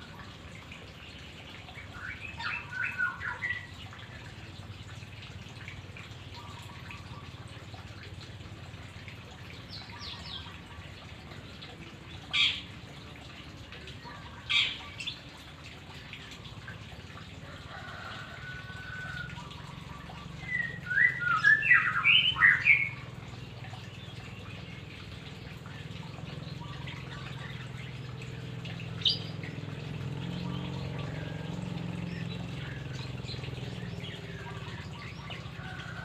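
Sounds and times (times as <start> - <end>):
songbird chirping: 19.2 - 23.1.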